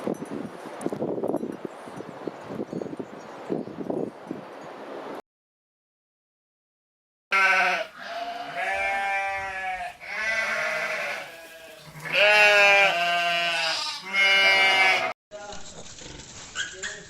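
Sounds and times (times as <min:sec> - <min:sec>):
animal bleating: 0:07.3 - 0:15.2.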